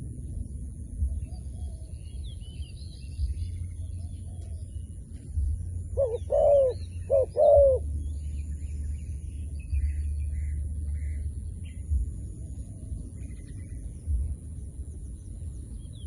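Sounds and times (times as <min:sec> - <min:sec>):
steady low hum: 0:00.0 - 0:16.0
dove cooing: 0:06.0 - 0:07.9.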